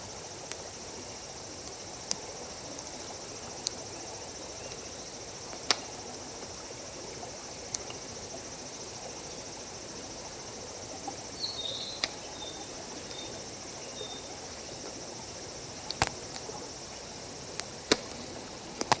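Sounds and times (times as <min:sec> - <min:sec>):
wood campfire crackling: 0:00.0 - 0:09.4, 0:10.0 - 0:19.0
high-pitched insect trill: 0:00.0 - 0:18.4
sharp pops of fire: 0:05.6 - 0:06.0, 0:15.8 - 0:16.5, 0:17.6 - 0:18.2, 0:18.8 - 0:19.0.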